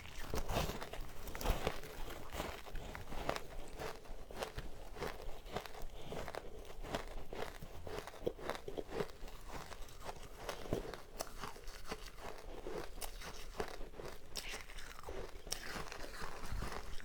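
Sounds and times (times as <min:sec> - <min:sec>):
chewing crunchy ice: 0:00.0 - 0:17.0.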